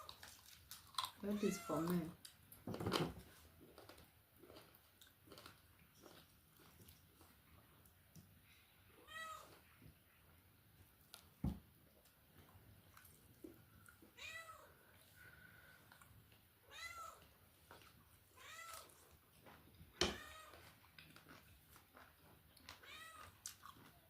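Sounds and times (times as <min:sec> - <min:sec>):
cat meowing: 0:16.6 - 0:17.2, 0:18.4 - 0:19.0, 0:20.0 - 0:20.6, 0:22.8 - 0:23.4.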